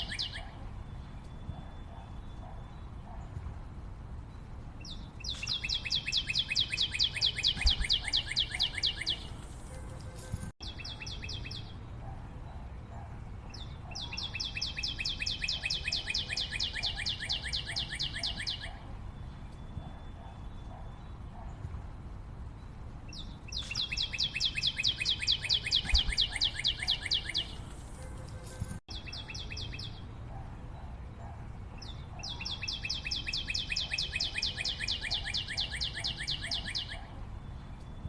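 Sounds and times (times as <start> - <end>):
bird singing fast trills: 0.0 - 3.2, 4.8 - 9.4, 10.6 - 12.0, 13.5 - 21.2, 23.1 - 27.6, 28.9 - 30.2, 31.8 - 38.0.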